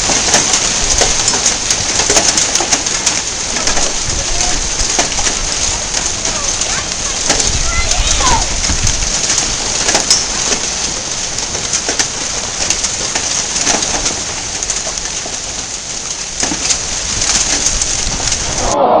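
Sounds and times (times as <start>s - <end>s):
hail pelting down: 0.0s - 18.8s
hailstones cracking on hard surfaces: 0.0s - 18.8s.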